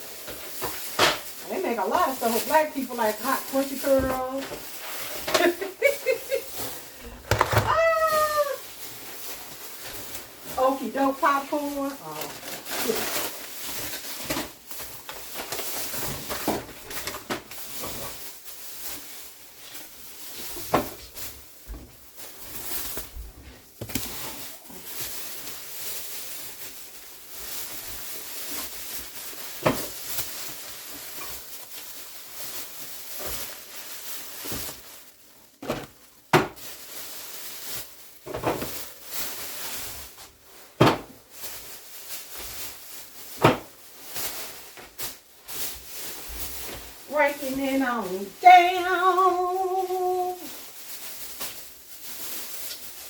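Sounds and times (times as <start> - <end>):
bags rustling: 0.0 - 53.0
groceries knocking and clattering: 0.0 - 53.0.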